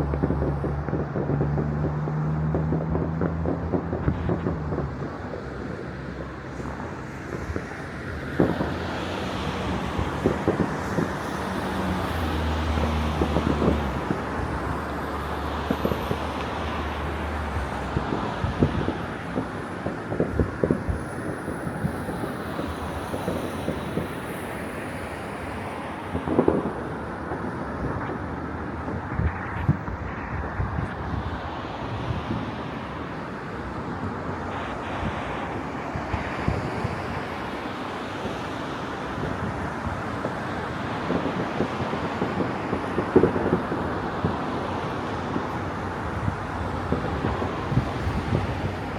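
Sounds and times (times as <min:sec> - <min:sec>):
city traffic noise: 0:00.0 - 0:48.9
distant fireworks popping and banging: 0:00.0 - 0:48.9.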